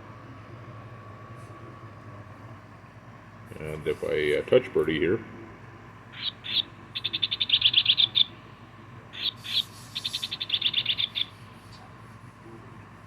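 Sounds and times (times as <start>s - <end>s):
toy bird electronic chirps: 6.1s - 8.4s, 9.1s - 11.4s.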